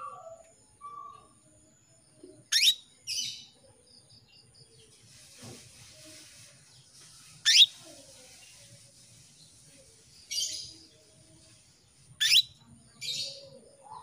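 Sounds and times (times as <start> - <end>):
canary chirping: 2.4 - 3.6, 6.8 - 13.6.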